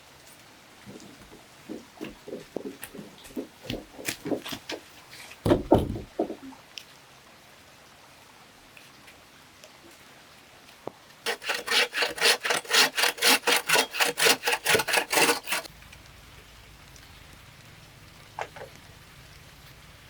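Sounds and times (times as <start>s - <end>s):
hand saw cutting bamboo: 11.2s - 15.7s.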